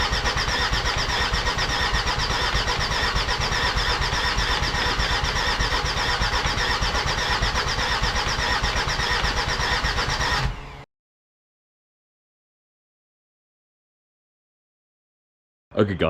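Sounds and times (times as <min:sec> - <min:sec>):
starter motor cranking diesel engine: 0:00.0 - 0:10.8.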